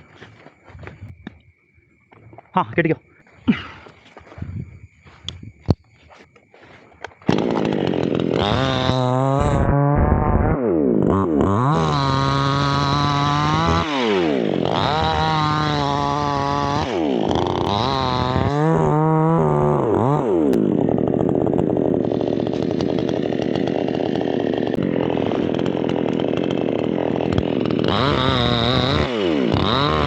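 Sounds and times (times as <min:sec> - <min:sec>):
chainsaw engine revving: 0:07.2 - 0:30.0.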